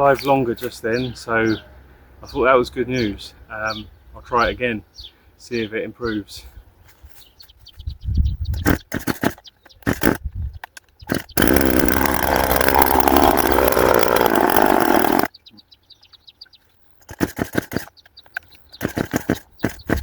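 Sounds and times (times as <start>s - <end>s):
starter cord pulls: 8.7s - 10.2s, 11.1s - 15.3s, 17.0s - 17.9s, 18.8s - 20.0s
chainsaw engine running: 8.9s - 10.2s, 11.1s - 15.3s, 17.1s - 17.9s, 18.8s - 20.0s.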